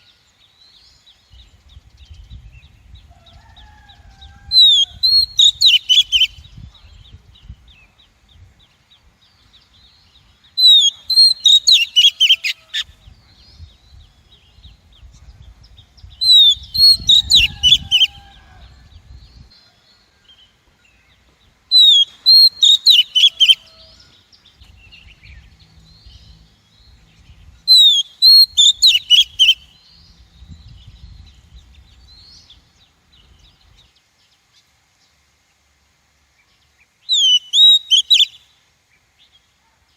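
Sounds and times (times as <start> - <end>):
bird calling sharp whistled notes: 10.6 - 12.6, 21.8 - 23.7, 27.7 - 29.6, 37.1 - 38.4.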